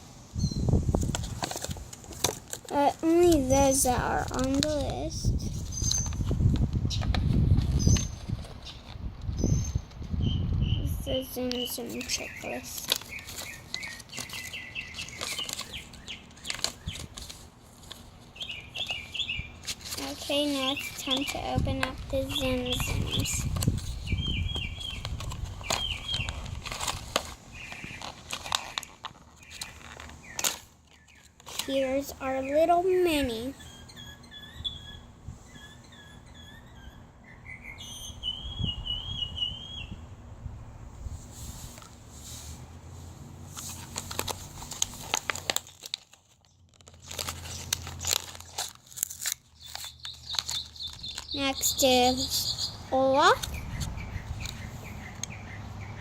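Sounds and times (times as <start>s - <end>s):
plastic packaging crinkling: 1.0s - 9.0s, 11.3s - 32.4s, 43.5s - 52.3s.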